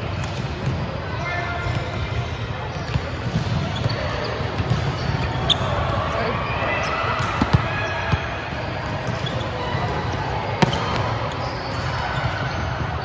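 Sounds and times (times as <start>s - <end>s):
volleyballs being struck: 10.5s - 12.0s.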